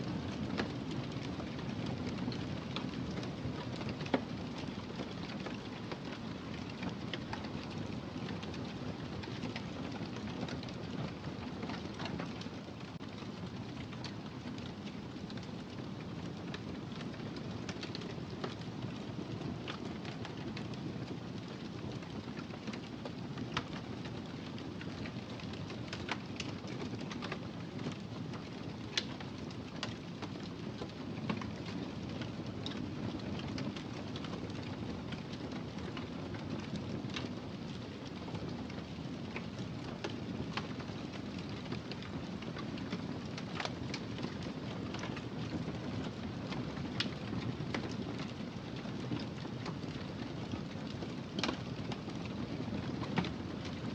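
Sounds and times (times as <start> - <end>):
wood fire crackling: 0.1 - 53.9
fire pops and snaps: 16.4 - 37.3, 47.0 - 53.8.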